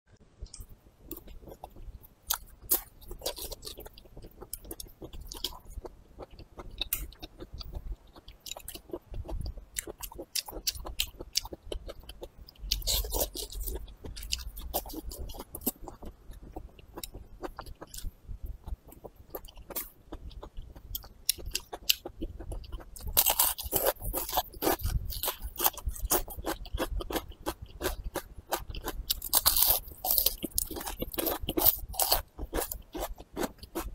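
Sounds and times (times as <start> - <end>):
pepper crunching: 23.0 - 33.9.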